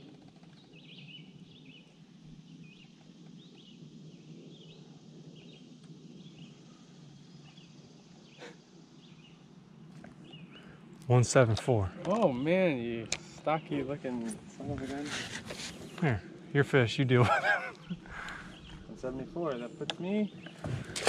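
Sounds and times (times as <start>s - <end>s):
faint birds chirping: 0.0s - 21.0s.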